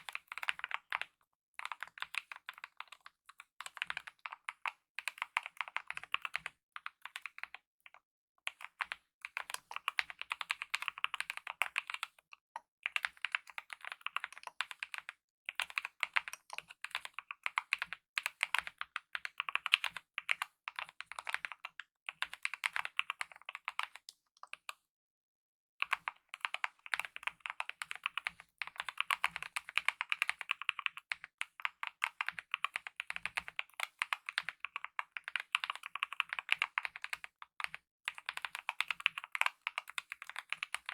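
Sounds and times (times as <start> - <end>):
fast mechanical keyboard typing: 0.0 - 3.0, 3.6 - 7.6, 8.5 - 12.1, 12.9 - 24.0, 25.8 - 40.9.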